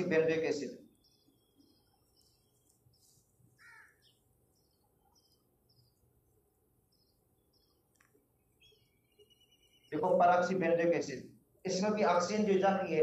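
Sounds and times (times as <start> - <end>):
faint bird chirps: 0.8 - 6.1, 6.9 - 10.0.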